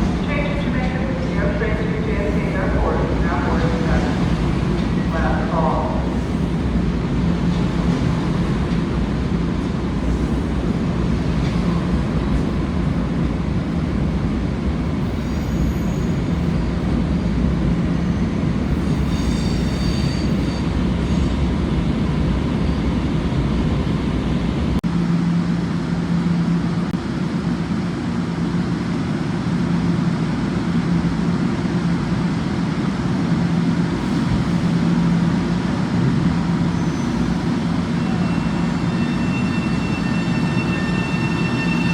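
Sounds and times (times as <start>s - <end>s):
train rumbling on rails: 0.0s - 41.9s
high-pitched wheel squeal: 18.9s - 21.3s, 36.8s - 41.9s.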